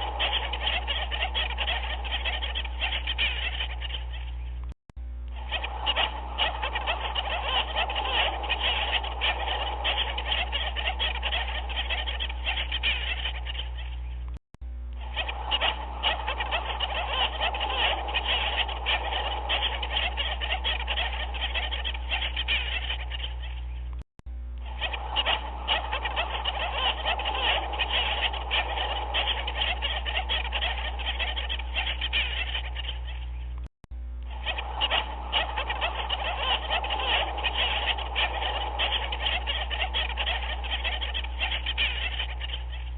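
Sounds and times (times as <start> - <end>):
chorus of animal calls: 0.0 - 4.6, 5.3 - 14.3, 15.0 - 24.0, 24.6 - 33.6, 34.2 - 42.9
steady low hum: 0.0 - 42.9.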